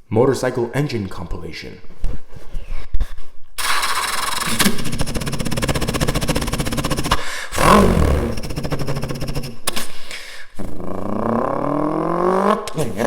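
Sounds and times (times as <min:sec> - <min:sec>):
man imitating motorcycle engine: 0:04.3 - 0:09.7, 0:10.5 - 0:13.0.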